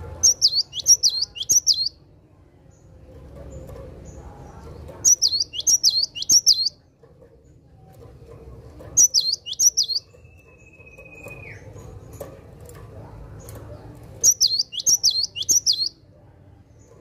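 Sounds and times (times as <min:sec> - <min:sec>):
bird whistling song: 0:00.2 - 0:02.0, 0:05.0 - 0:06.8, 0:09.0 - 0:11.7, 0:14.2 - 0:16.0.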